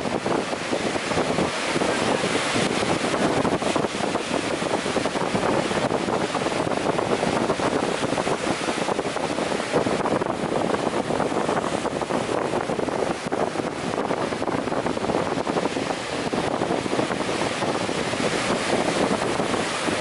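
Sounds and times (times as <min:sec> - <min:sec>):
ocean waves breaking: 0:00.0 - 0:20.0.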